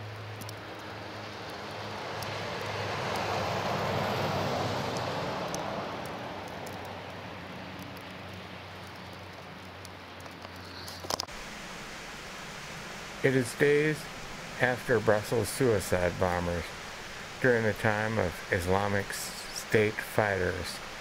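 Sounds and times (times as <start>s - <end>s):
car engine and road hum: 0.0s - 13.3s.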